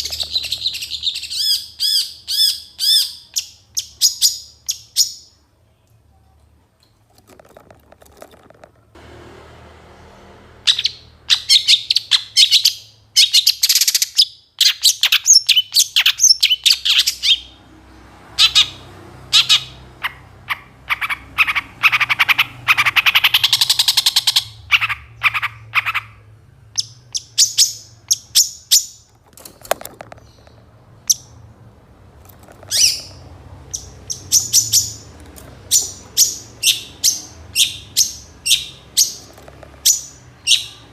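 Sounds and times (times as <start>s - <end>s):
bird singing chirps and trills: 0.0s - 5.4s, 18.4s - 26.2s, 32.6s - 40.9s.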